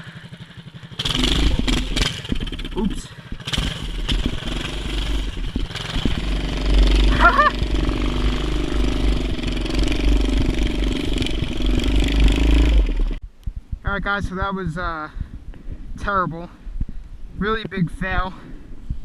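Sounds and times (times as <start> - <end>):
small engine running: 0.0 - 13.2.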